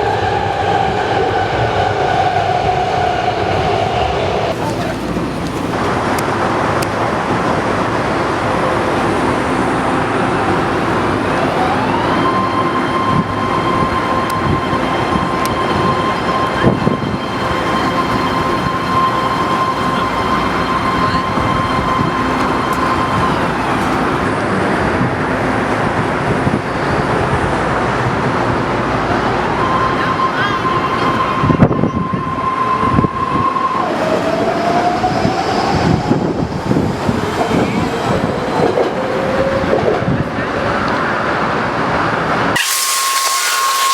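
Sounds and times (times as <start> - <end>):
train rumble and rail noise: 0.0 - 42.7
high train whine: 0.0 - 43.9.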